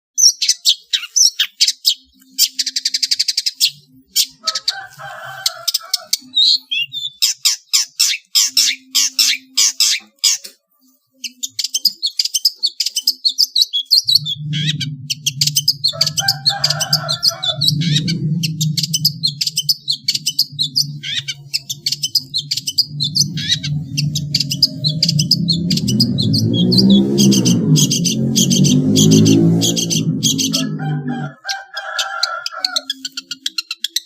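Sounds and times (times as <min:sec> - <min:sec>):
bird chirping: 0:00.2 - 0:34.0
bird rattling trill: 0:14.0 - 0:30.7.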